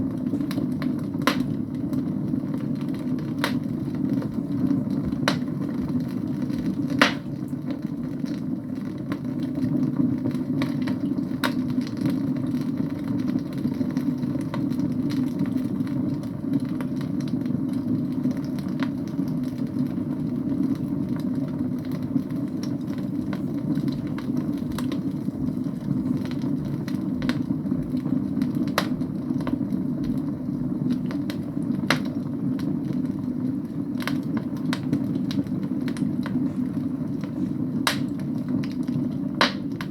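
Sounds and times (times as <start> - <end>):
burning logs rumbling: 0.0 - 39.9
fire crackling pops: 0.0 - 39.9.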